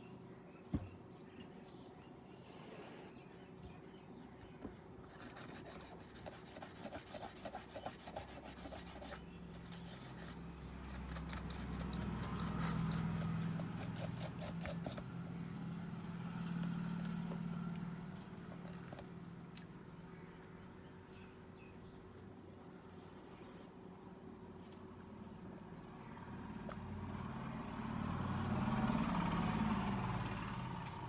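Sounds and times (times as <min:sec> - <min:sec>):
scraping and rubbing: 0:05.1 - 0:15.1.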